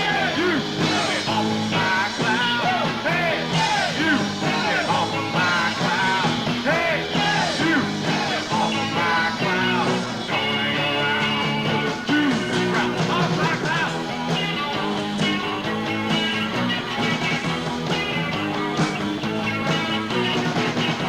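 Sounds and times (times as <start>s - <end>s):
bass guitar: 0.0s - 21.0s
drums: 0.0s - 21.0s
electric guitars: 0.0s - 21.0s.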